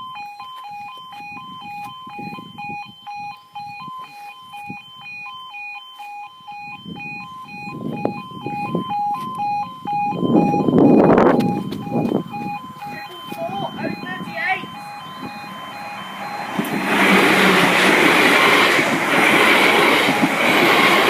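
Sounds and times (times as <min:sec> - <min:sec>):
two-tone crossing alarm: 0:00.0 - 0:21.0
train rumble: 0:10.3 - 0:21.0.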